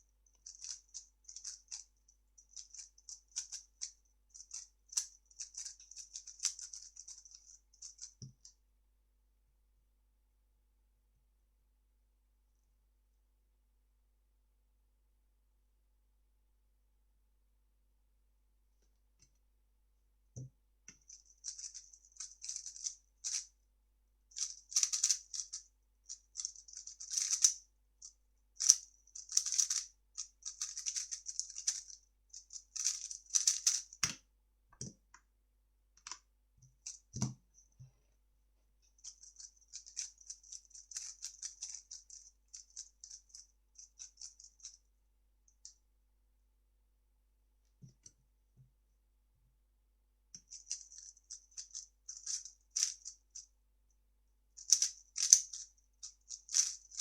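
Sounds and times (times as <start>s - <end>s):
puzzle cube plastic clicking: 26.4s - 27.6s, 28.6s - 29.8s, 30.4s - 31.9s, 32.8s - 34.2s, 54.7s - 55.6s.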